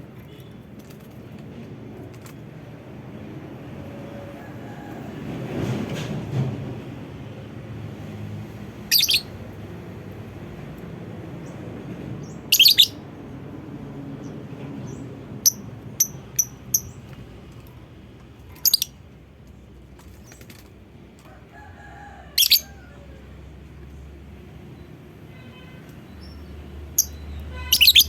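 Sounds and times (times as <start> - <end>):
bird chirping shrilly: 8.8 - 9.4, 12.3 - 13.0, 18.6 - 18.9, 22.4 - 22.6, 27.0 - 28.0.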